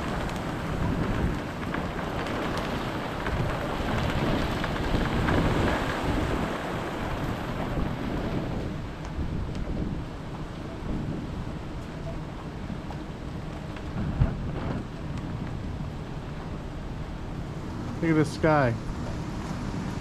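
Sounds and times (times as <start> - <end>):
low thunder rumble: 0.0 - 18.1
heavy rain falling: 0.0 - 20.0.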